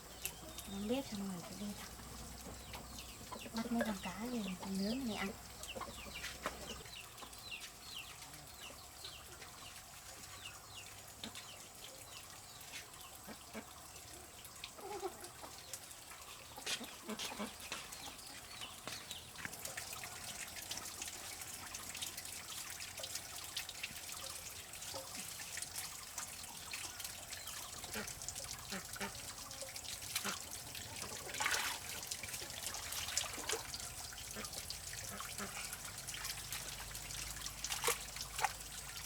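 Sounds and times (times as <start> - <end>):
water trickling and splashing: 0.0 - 39.0
chickens clucking: 0.3 - 8.8, 16.4 - 19.2.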